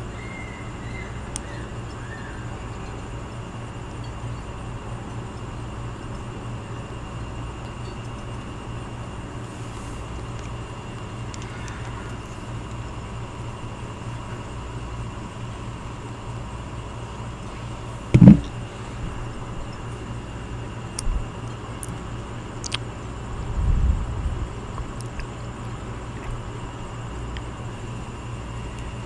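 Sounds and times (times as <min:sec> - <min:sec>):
air conditioning unit humming: 0:00.0 - 0:29.0
loud dull thump: 0:18.2 - 0:18.5.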